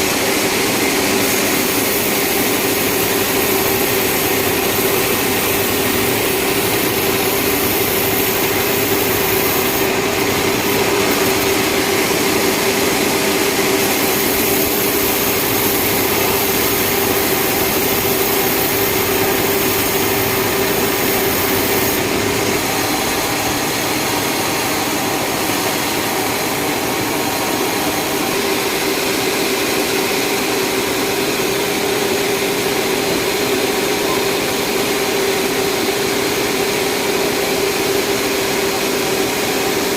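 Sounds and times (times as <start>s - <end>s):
broad hissing noise: 0.0s - 39.9s
sawmill saw whining: 0.0s - 39.9s.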